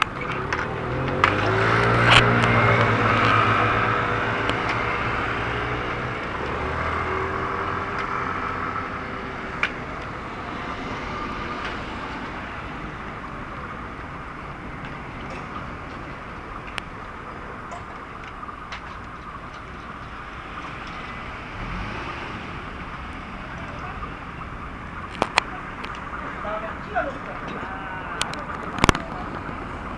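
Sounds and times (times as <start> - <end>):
train rumble: 0.0 - 29.9.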